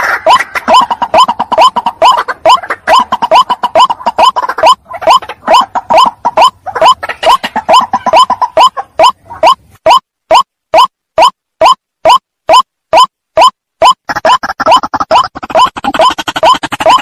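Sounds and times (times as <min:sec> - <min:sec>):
waterhen croaking calls: 0:00.0 - 0:17.0.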